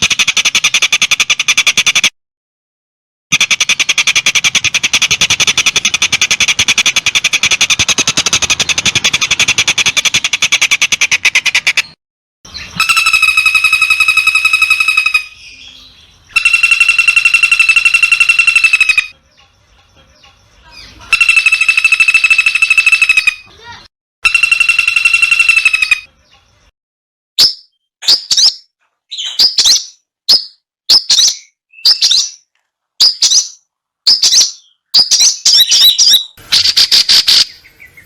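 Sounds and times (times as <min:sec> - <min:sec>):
bird trilled bursts: 0:03.3 - 0:15.6, 0:16.3 - 0:19.2, 0:21.0 - 0:26.2
bird chattering song: 0:03.4 - 0:26.7, 0:27.4 - 0:38.0.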